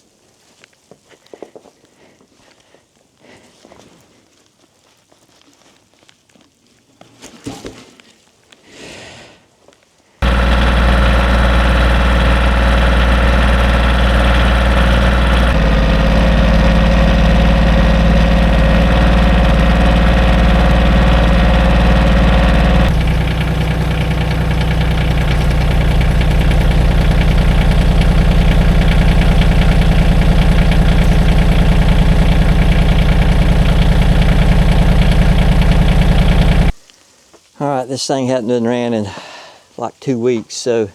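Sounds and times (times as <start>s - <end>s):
engine running: 10.2s - 36.8s.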